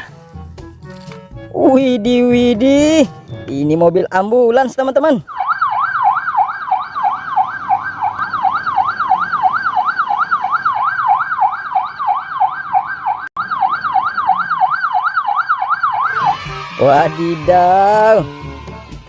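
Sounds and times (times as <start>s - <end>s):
ambulance siren yelping: 4.1s - 19.0s.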